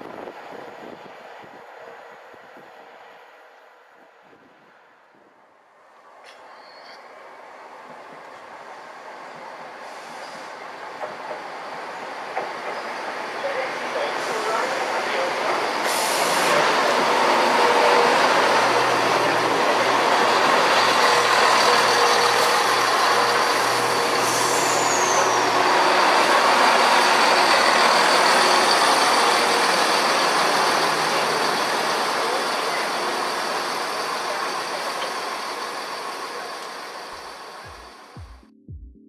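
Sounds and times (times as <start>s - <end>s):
diesel train rumbling: 6.1s - 38.3s
brief falling squeal: 6.4s - 7.1s, 21.4s - 25.6s.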